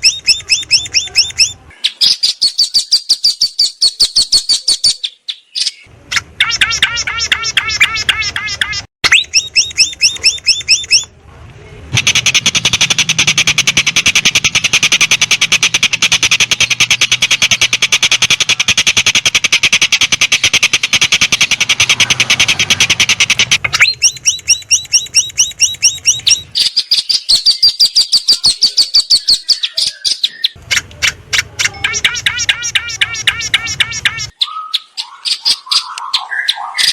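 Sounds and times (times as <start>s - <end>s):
songbird singing fast trills: 0.0s - 8.2s, 9.1s - 11.1s, 12.0s - 30.9s.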